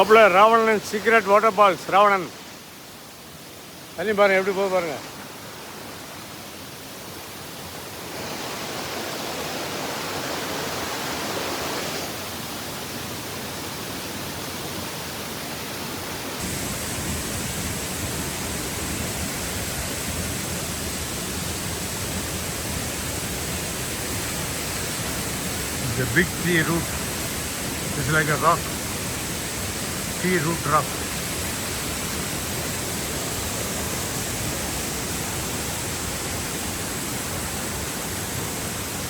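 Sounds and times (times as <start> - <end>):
waterfall rushing: 7.8 - 39.0.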